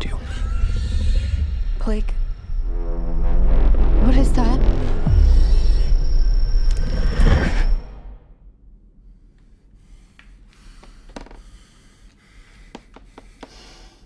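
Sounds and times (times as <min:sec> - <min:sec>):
low rumble: 0:00.0 - 0:10.1
loud sound cut off: 0:02.2 - 0:08.3.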